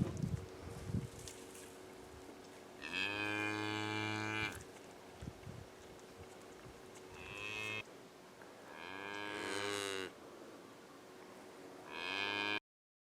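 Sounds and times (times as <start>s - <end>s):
farm animal calling: 6.9s - 7.8s.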